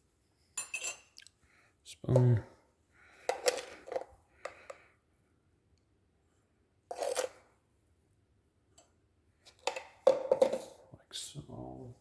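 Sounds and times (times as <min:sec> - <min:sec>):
spoon scraping sugar: 0:06.9 - 0:07.6.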